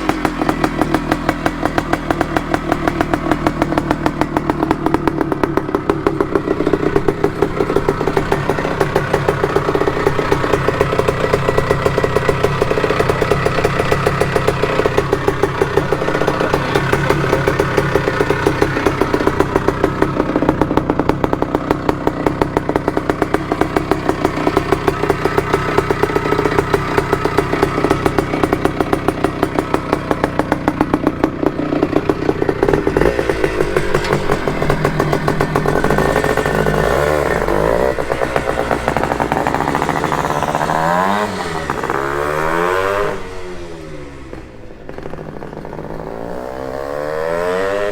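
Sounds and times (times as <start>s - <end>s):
two-stroke engine revving: 0.0s - 47.9s.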